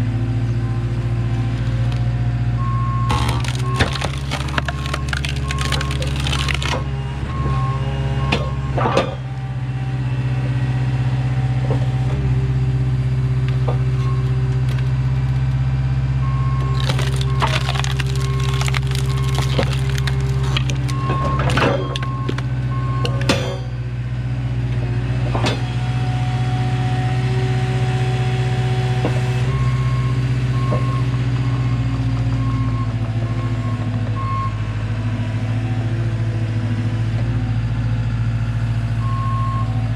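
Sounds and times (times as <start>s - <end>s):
skid steer engine running: 0.0s - 39.9s
wood cracking and snapping: 3.1s - 6.9s, 16.6s - 22.4s
backup alarm beeping: 20.8s - 23.3s.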